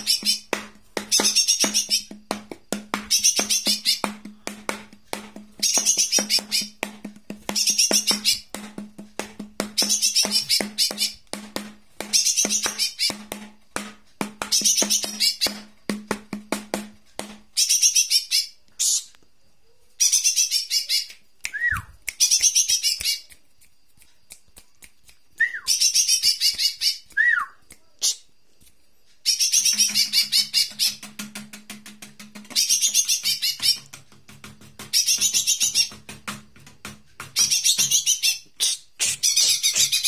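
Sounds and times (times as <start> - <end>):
bird whistles down-slurred: 21.5 - 22.4, 25.4 - 25.9, 26.6 - 27.6.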